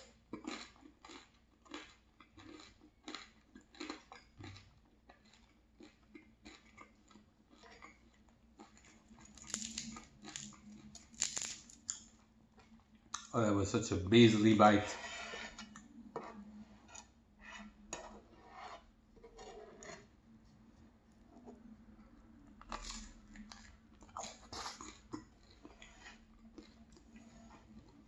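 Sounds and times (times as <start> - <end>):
chewing crusty bread: 0.0 - 13.6, 15.0 - 28.0
bread scraping a frying pan: 14.3 - 20.1, 27.1 - 27.8.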